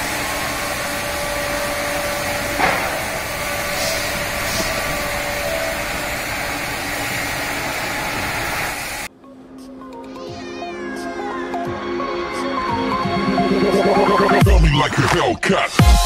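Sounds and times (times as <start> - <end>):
wood lathe running: 0.0 - 9.1.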